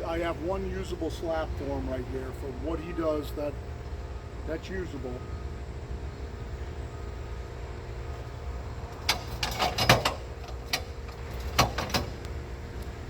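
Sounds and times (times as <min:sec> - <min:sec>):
engine idling: 0:00.0 - 0:13.0
sharp knocks and clanks: 0:09.0 - 0:12.2.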